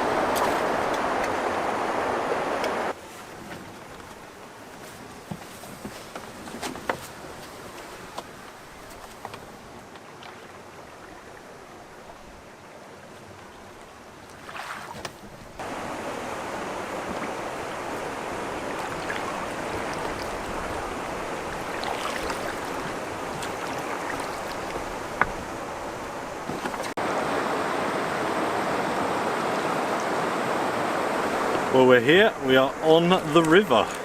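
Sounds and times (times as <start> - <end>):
river rapids rushing: 0.0 - 3.0, 15.6 - 34.0.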